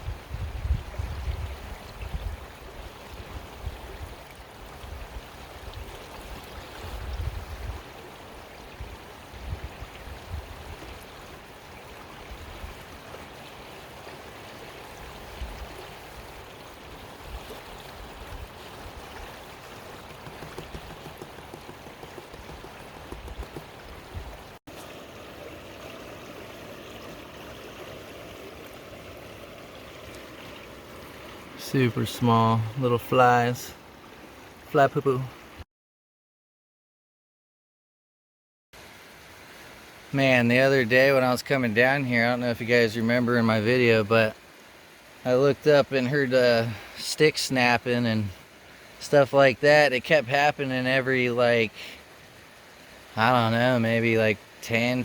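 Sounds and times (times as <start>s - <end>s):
water running over rocks: 0.0s - 35.4s, 38.8s - 55.0s.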